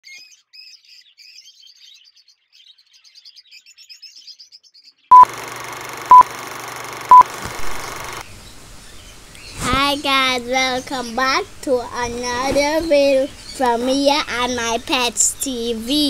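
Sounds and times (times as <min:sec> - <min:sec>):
small bird chirping: 0:00.0 - 0:05.2
steady hiss: 0:07.3 - 0:16.0.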